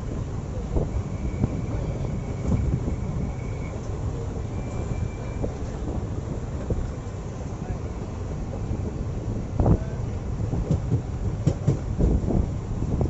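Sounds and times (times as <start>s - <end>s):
train wheels rumbling on rails: 0.0s - 13.0s
faint high-pitched squeal: 0.9s - 5.8s.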